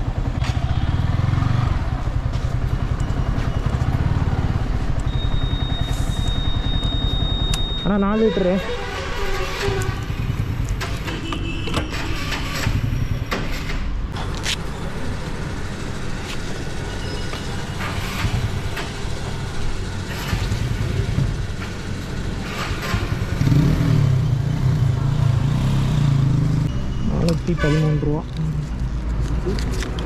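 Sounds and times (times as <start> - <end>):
vehicle engines running: 0.0 - 30.0.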